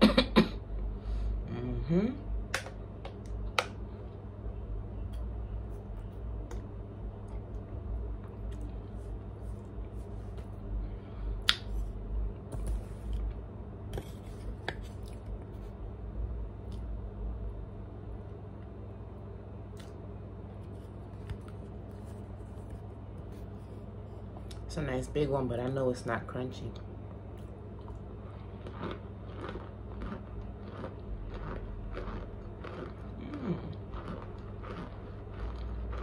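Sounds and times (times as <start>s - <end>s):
low hum: 0.0s - 36.0s
person eating mouth sounds: 28.6s - 36.0s.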